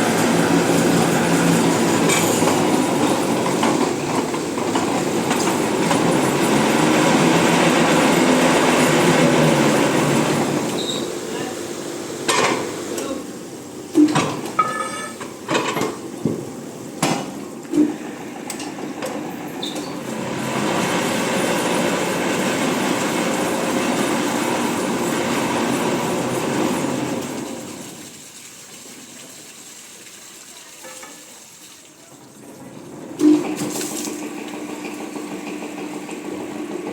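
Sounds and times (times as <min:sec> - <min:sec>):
drilling machine running: 0:04.6 - 0:10.9, 0:20.1 - 0:27.6.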